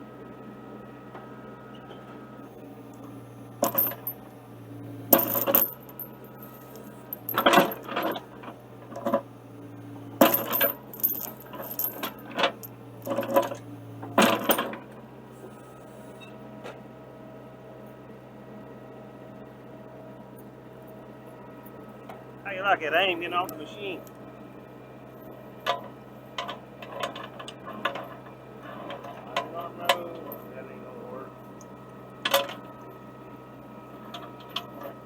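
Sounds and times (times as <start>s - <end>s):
excavator engine running: 0.0s - 35.0s
steel chain clanking against metal: 2.9s - 4.3s, 5.0s - 14.9s, 25.6s - 30.6s, 32.3s - 32.7s, 34.1s - 35.0s.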